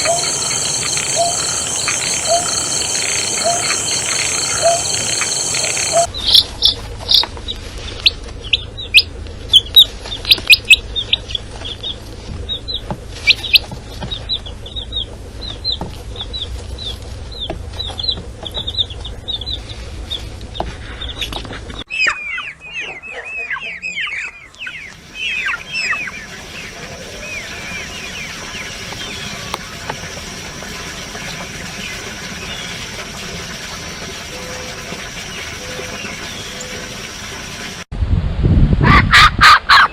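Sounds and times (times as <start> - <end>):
lower falling chirps: 0.0 - 6.5
birds chirping rapidly: 0.0 - 7.3.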